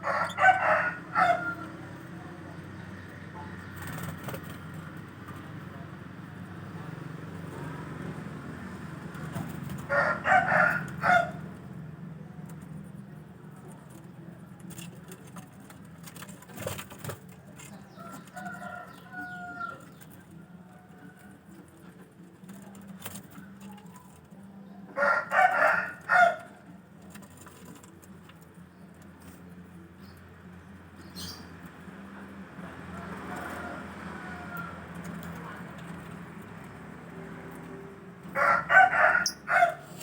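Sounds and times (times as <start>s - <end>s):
rooster crowing: 0.0s - 2.1s, 9.8s - 11.5s, 17.9s - 19.9s, 25.0s - 26.6s, 33.0s - 35.2s, 38.2s - 40.0s.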